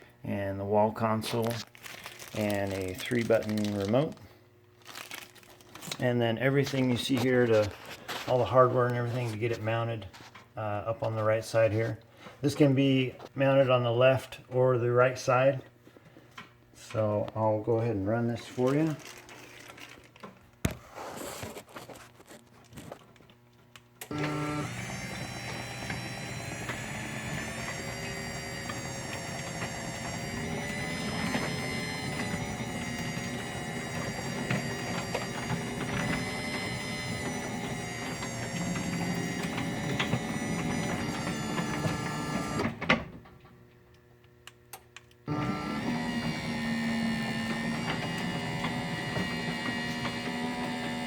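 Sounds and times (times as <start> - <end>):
motor stopping clunk: 24.0 - 43.4
garage door opener motor humming: 24.0 - 43.7, 45.2 - 51.0.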